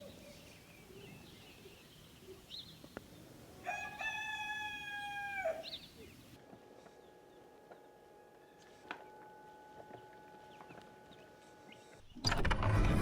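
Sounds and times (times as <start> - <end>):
rooster crowing: 3.6 - 5.8.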